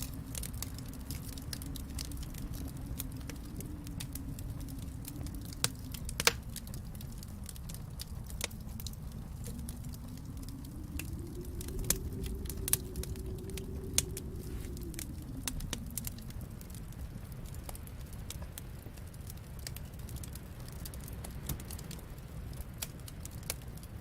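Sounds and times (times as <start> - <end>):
low steady rumble: 0.0 - 24.0
wood fire crackling: 0.0 - 24.0.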